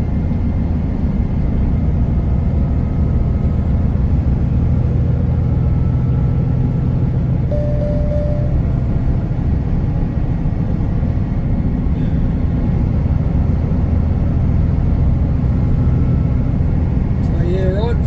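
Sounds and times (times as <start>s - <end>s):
road noise: 0.0s - 18.0s
truck engine drone: 0.0s - 18.0s
short beep: 7.5s - 8.9s.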